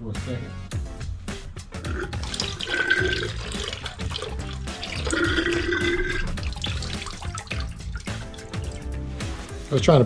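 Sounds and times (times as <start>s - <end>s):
background music: 0.0s - 10.0s
liquid pouring into a bucket: 1.8s - 9.8s.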